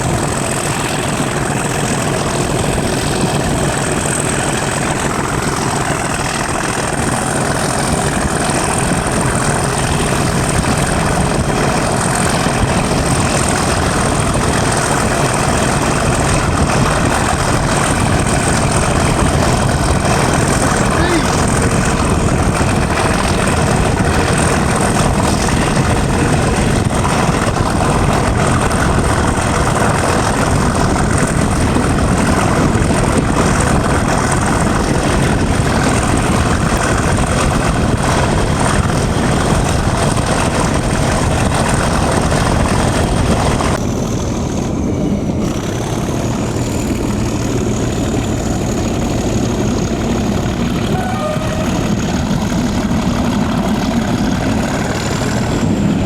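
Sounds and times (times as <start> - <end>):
diesel locomotive engine: 0.0 - 56.0
faint high whistling tone: 50.8 - 52.1.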